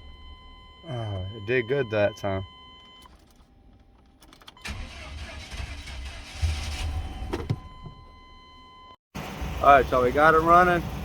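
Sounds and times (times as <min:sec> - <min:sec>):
starter motor cranking: 0:04.6 - 0:07.0.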